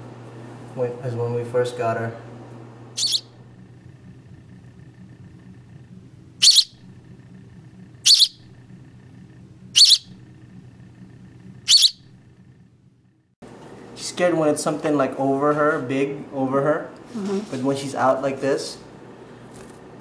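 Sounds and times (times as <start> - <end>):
faint steady hum: 0.0 - 20.0
young bird chirping: 3.0 - 3.3, 6.4 - 6.8, 8.0 - 8.5, 9.8 - 10.2, 11.7 - 12.1.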